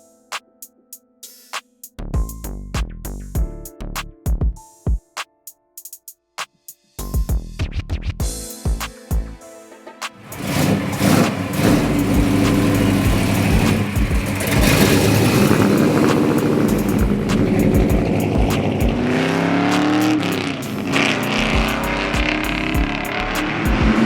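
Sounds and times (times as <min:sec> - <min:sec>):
car engine revving: 0:10.2 - 0:24.0.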